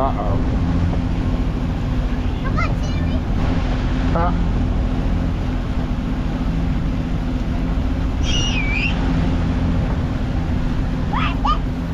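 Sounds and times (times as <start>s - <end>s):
motorboat engine humming: 0.0s - 11.9s
short high whistle-like call: 8.2s - 9.0s.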